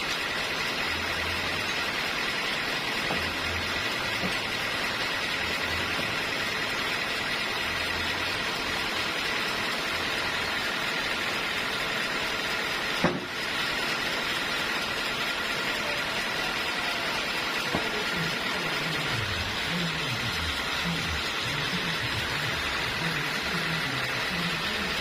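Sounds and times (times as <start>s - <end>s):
sawmill machinery running: 0.0s - 25.0s
sharp knock: 13.0s - 13.3s.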